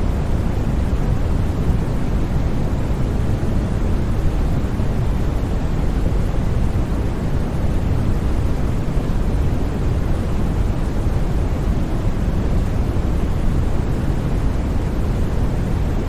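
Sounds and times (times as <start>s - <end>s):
white noise hiss: 0.0s - 16.0s.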